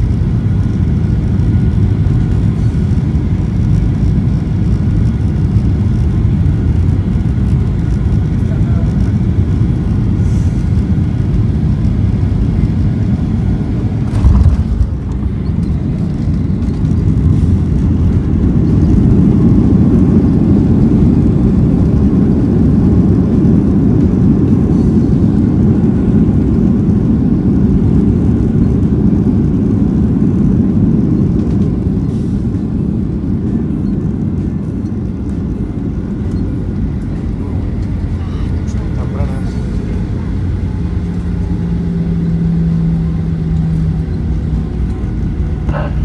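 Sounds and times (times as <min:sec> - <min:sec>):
jet airliner cabin rumble: 0:00.0 - 0:46.0
sharp thump: 0:14.0 - 0:15.2.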